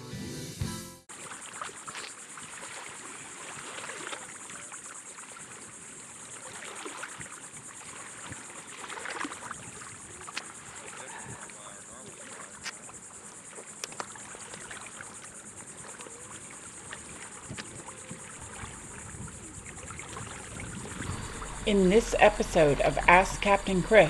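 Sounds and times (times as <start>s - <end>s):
small water splashes: 1.1s - 24.0s
water lapping against a boat: 1.1s - 24.0s
steady high-pitched buzz: 18.3s - 24.0s.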